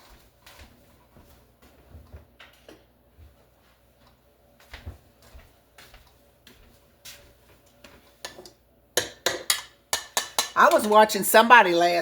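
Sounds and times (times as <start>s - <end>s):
utensils and dishes clicking: 8.3s - 11.1s.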